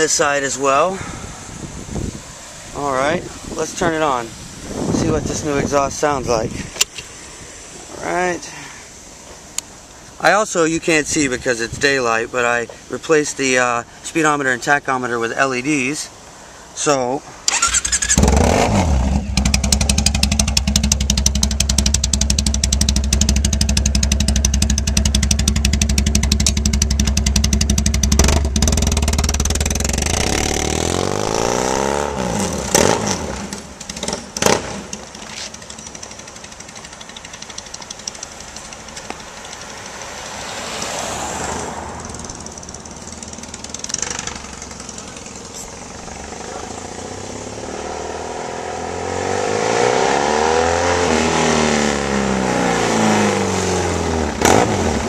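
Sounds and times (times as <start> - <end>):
exhaust cracks: 17.5 - 50.4, 51.0 - 55.0
motorcycle engine idling: 19.0 - 30.6, 33.4 - 40.4, 42.0 - 47.9.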